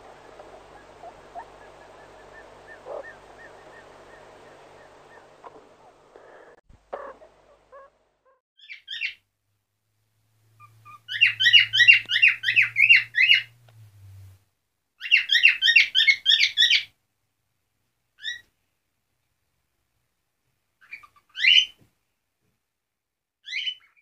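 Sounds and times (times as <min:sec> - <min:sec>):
bird chirping: 0:00.0 - 0:09.2, 0:10.6 - 0:13.6.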